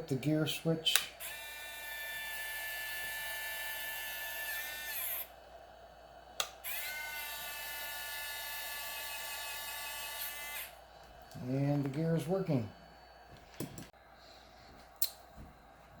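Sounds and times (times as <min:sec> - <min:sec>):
landing-gear motors whining: 0:06.6 - 0:10.8.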